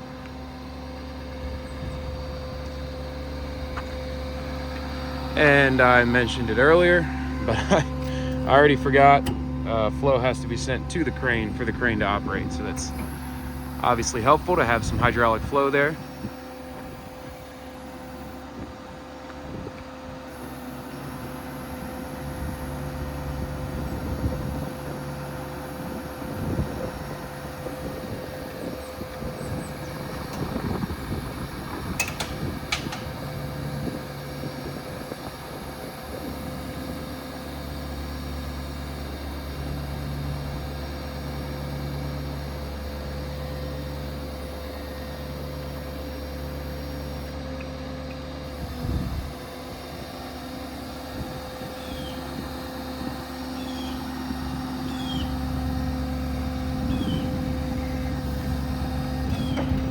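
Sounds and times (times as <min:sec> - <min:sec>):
diesel engine idling: 0:00.0 - 0:59.9
sharp clicks: 0:31.9 - 0:33.8.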